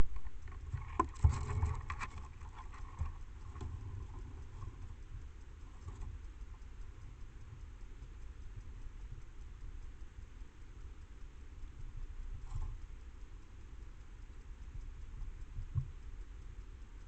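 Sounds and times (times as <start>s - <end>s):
sharp clicks and knocks: 0.0s - 6.8s
steady low rumble: 0.0s - 17.0s.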